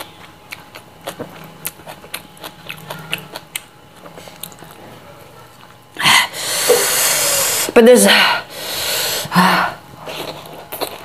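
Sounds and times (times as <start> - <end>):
chewing and lip-smacking: 0.0 - 5.8, 10.0 - 11.0
breath sucked through teeth: 6.4 - 7.7.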